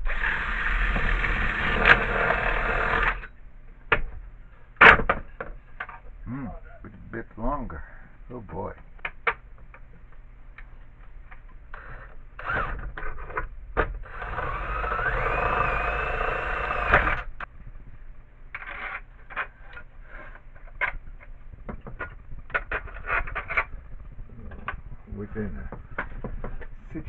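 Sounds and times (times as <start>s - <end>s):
power tool whining: 0.0s - 3.3s, 11.7s - 17.5s.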